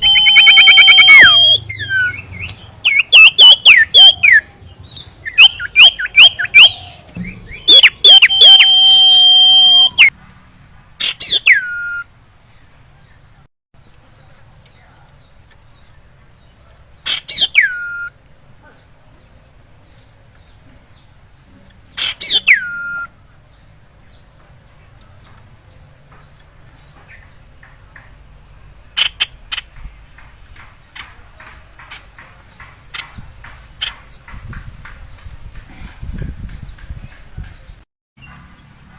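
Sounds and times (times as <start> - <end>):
bird whistles: 0.0 - 4.4, 5.2 - 10.1, 11.0 - 12.1, 17.1 - 18.1, 22.0 - 23.1
short bird chips: 0.0 - 10.2.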